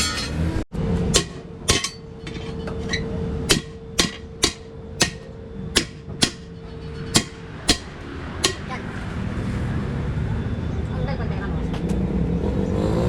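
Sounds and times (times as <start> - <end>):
hammer striking metal: 1.1 - 8.9.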